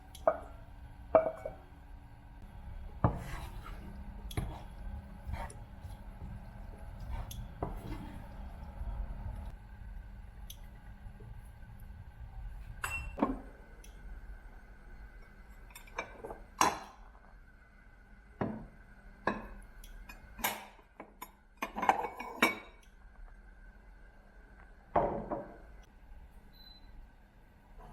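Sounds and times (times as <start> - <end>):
glassware and utensils clinking: 12.8 - 13.4, 20.1 - 22.9.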